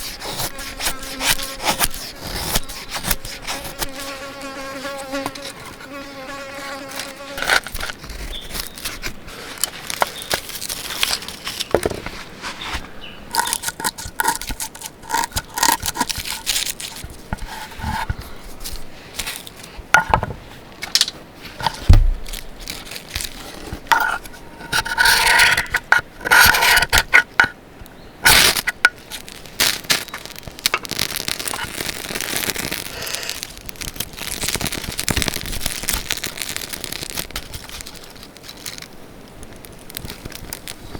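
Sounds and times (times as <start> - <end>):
fly buzzing: 0.5 - 7.7.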